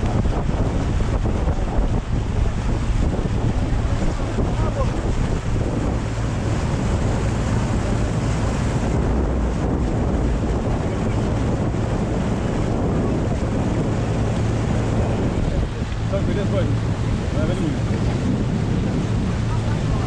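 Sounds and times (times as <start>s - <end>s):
motorboat engine hum: 0.0s - 20.0s
rush of wake: 0.0s - 20.0s
wind buffeting microphone: 0.0s - 20.0s.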